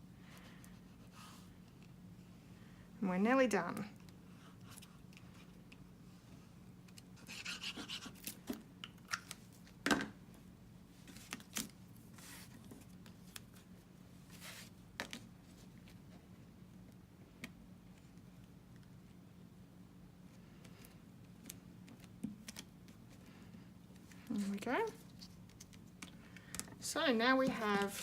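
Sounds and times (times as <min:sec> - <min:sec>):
cardstock rustling: 0:27.4 - 0:28.0.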